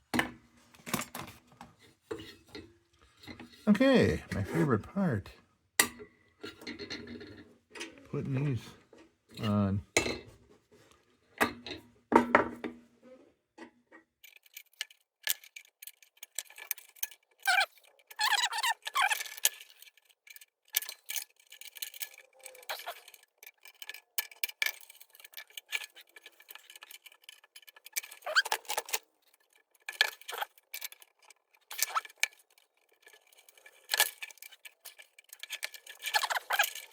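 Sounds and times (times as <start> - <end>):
metal lantern parts clinking: 14.2 - 36.9
brief squeaks: 17.5 - 19.2, 28.2 - 28.9.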